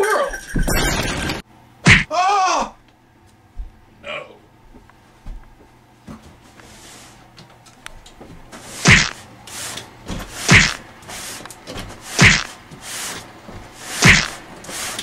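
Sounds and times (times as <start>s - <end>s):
heavy thuds: 10.1s - 10.8s.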